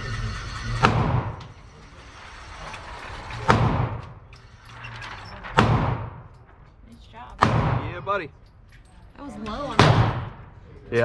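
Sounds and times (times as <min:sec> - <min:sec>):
pistol shots echoing: 0:00.8 - 0:01.4, 0:05.6 - 0:06.2, 0:07.4 - 0:08.2, 0:09.7 - 0:10.6.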